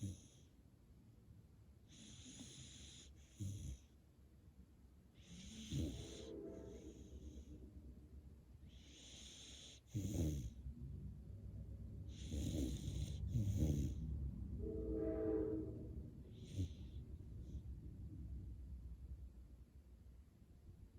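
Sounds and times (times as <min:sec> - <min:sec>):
dog snoring: 0:00.0 - 0:00.5, 0:01.9 - 0:03.9, 0:05.2 - 0:07.5, 0:08.6 - 0:10.6, 0:12.1 - 0:14.1, 0:16.3 - 0:17.6.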